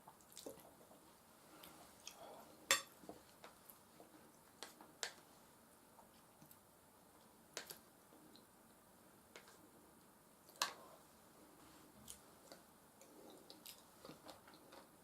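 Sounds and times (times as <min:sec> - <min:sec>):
mouth clicks and smacks eating: 0:00.0 - 0:00.7.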